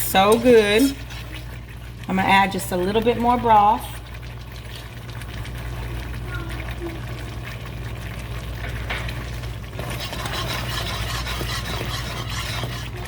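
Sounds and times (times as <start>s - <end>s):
whisk stirring and scraping pan: 0.0s - 3.8s, 8.6s - 13.0s
light sizzle: 0.0s - 13.0s.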